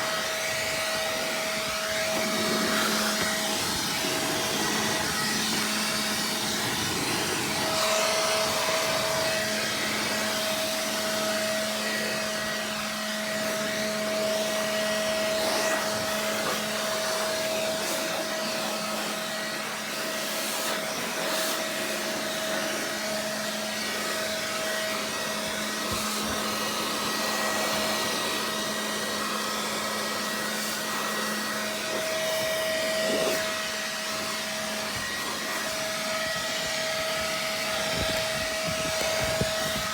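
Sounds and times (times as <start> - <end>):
electric air blower running: 0.0 - 39.9.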